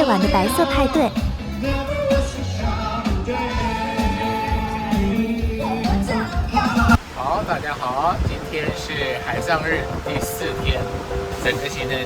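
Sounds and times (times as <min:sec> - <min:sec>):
music with steady beat: 0:00.0 - 0:07.0.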